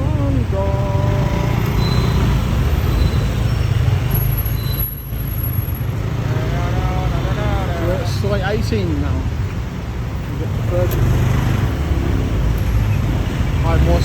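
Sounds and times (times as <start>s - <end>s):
motorbike engine and road noise: 0.0s - 14.0s
brief tones: 1.7s - 3.3s.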